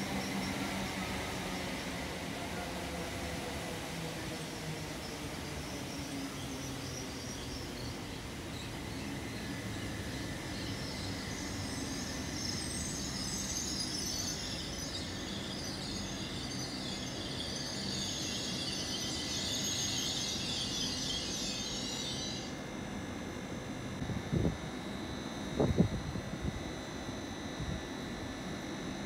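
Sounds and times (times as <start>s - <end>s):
train rumbling: 0.0s - 22.5s
fluttering high hiss: 0.0s - 22.6s.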